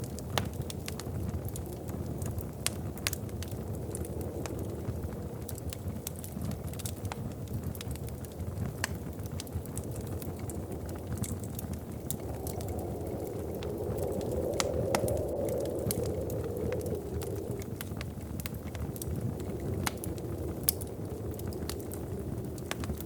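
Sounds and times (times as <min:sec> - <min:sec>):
wood fire crackling and popping: 0:00.0 - 0:23.0
low rumble: 0:10.1 - 0:23.0
rushing sound: 0:12.1 - 0:18.2.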